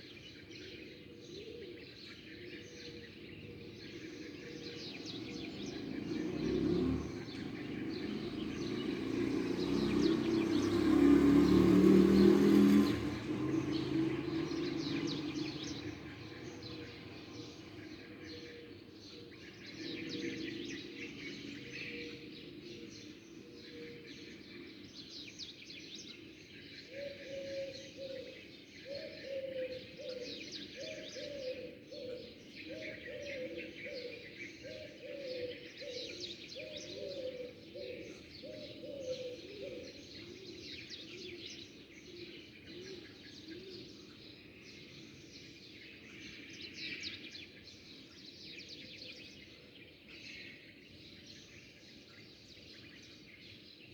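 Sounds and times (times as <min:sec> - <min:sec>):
low cooing bird call: 0:00.0 - 0:09.2, 0:12.4 - 0:24.8, 0:26.8 - 0:45.0
small birds chirping: 0:00.0 - 0:53.9.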